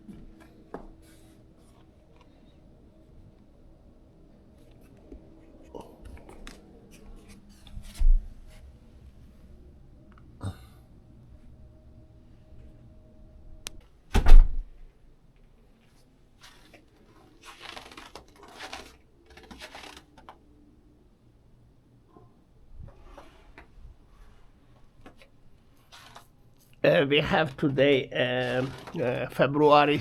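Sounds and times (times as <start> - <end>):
rustling: 15.7 - 20.5, 22.8 - 26.8, 27.4 - 29.3.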